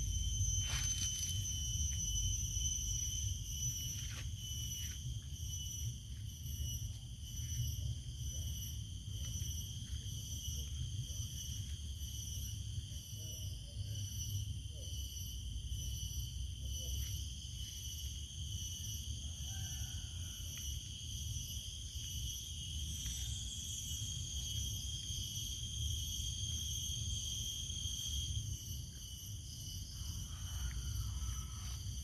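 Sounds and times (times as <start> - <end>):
insects shrilling: 0.0 - 14.6.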